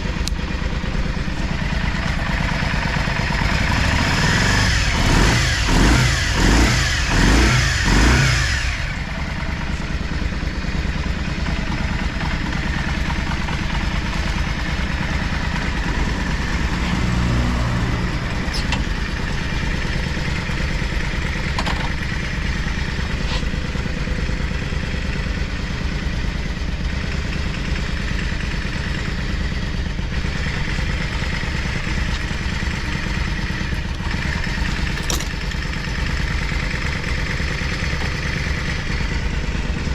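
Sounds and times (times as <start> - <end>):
motorcycle engine revving and idling: 0.0 - 39.9.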